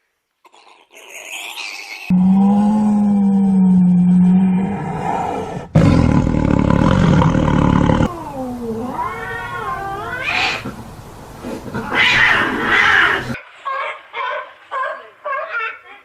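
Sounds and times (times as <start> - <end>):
harsh noisy animal call: 0.5 - 14.0
pitched animal call: 0.5 - 16.0
low rumbling animal roar: 2.1 - 13.4.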